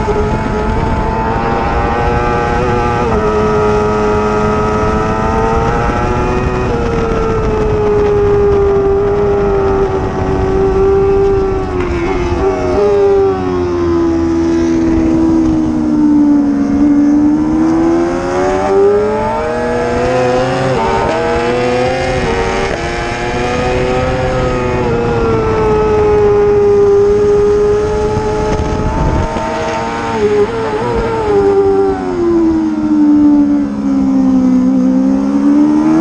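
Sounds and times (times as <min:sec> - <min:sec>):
racing motorcycle engine: 0:00.0 - 0:36.0.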